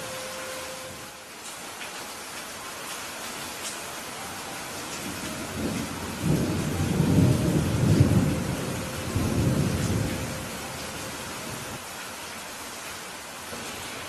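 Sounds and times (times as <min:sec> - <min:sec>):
steady rain: 0:00.0 - 0:14.0
rolling thunder: 0:05.0 - 0:11.8.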